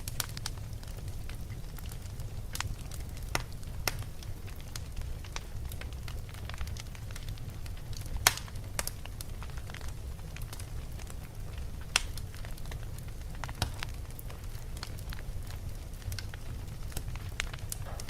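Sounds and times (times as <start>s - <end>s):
fire crackling and popping: 0.0s - 18.0s
low rumble of fire: 0.0s - 18.0s.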